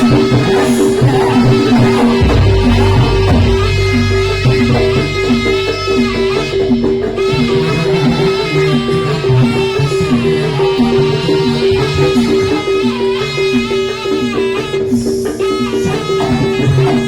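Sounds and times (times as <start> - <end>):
drumming: 0.5 - 9.0
wavering melody line: 2.1 - 9.0
gong chimes repeating two notes: 2.2 - 7.6.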